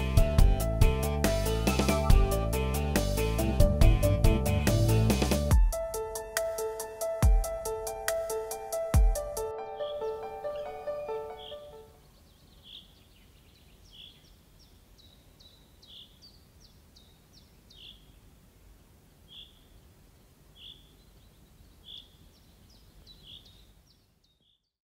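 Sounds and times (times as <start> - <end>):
high falling bird notes: 1.5 - 2.5, 9.4 - 12.9
bird chirping: 1.7 - 2.3, 9.6 - 18.3, 19.1 - 24.8.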